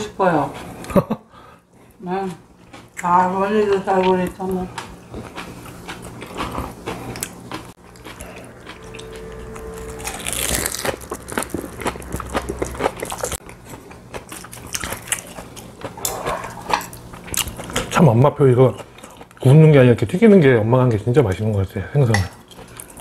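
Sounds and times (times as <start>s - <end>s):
crunching and chewing cabbage: 2.6s - 19.9s, 22.4s - 23.0s.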